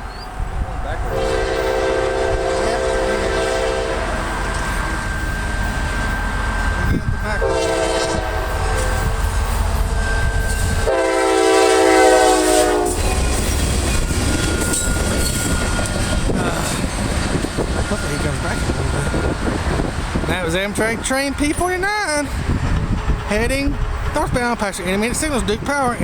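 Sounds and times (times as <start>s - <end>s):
train rumbling: 0.0s - 26.0s
locomotive air horn blasts: 1.0s - 4.9s, 7.4s - 10.0s, 10.7s - 13.6s.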